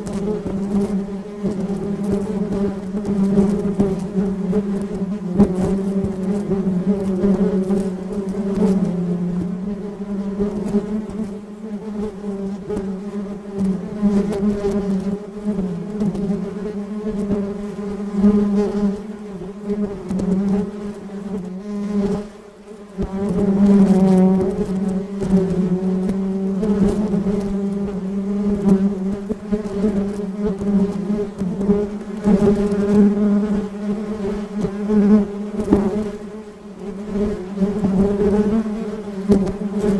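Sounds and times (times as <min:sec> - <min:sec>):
bee buzzing in flight: 0:00.0 - 0:39.9.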